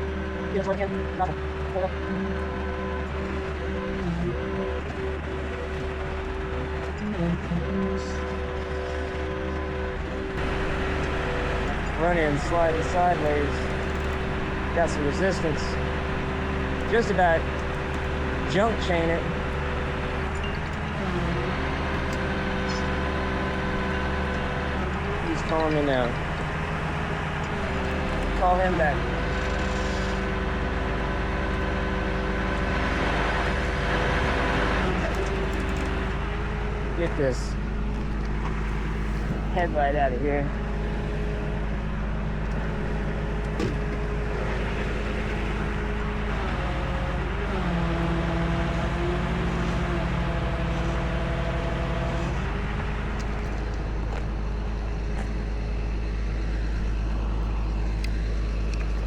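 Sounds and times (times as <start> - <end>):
hydraulic hum: 0.0 - 59.0
tow truck engine running: 0.0 - 59.0.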